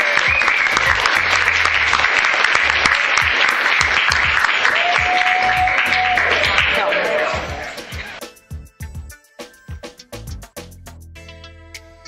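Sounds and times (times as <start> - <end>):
crowd clapping: 0.0 - 8.2
background music with low beat: 7.1 - 12.0.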